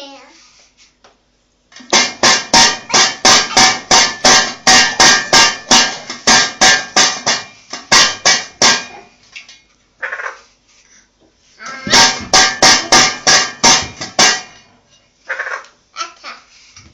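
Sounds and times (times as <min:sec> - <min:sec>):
parakeet banging a dish: 0:01.8 - 0:09.0, 0:11.8 - 0:14.6.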